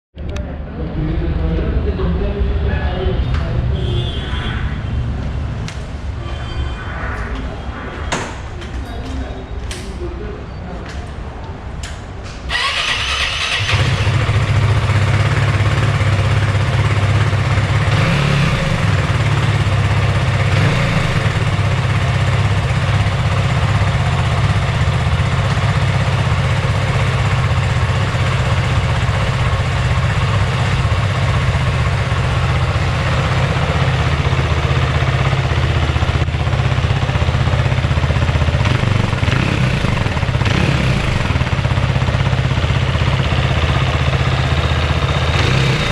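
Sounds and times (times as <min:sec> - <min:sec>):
motorcycle engine idling: 0:12.5 - 0:45.9.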